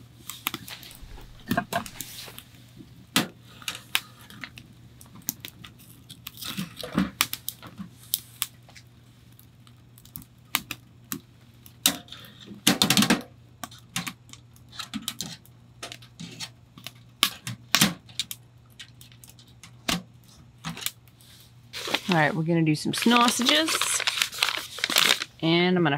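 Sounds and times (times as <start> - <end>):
rustling tear: 0.6 - 2.5, 23.0 - 25.4.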